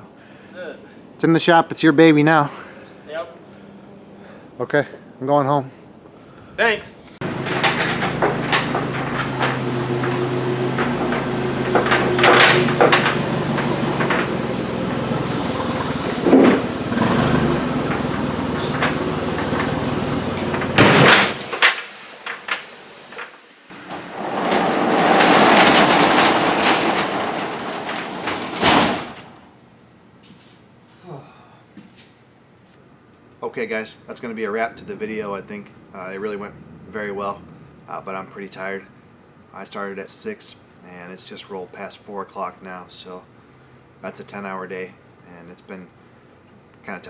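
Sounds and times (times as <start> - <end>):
truck engine running: 7.2 - 29.2
metal knocks and clanks: 7.2 - 29.5.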